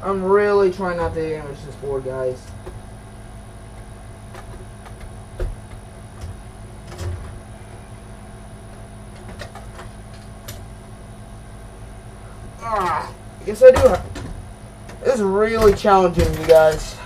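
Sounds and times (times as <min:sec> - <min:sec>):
faint steady hum: 0:00.0 - 0:17.0
clicks and knocks of computer parts: 0:03.8 - 0:07.4, 0:09.1 - 0:10.7, 0:13.7 - 0:17.0.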